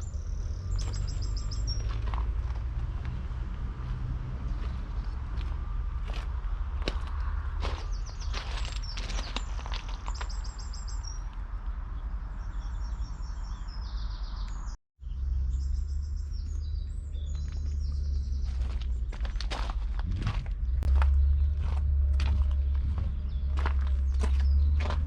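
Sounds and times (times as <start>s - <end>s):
small birds trilling: 0.0s - 2.2s, 7.6s - 25.0s
steady low rumble: 0.0s - 9.1s, 15.1s - 25.0s.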